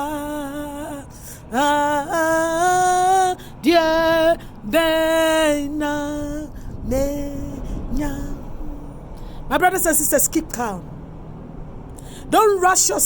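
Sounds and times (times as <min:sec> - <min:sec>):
person singing unaccompanied: 0:00.0 - 0:08.9
breaths: 0:01.1 - 0:01.5, 0:03.4 - 0:03.6, 0:11.9 - 0:12.3.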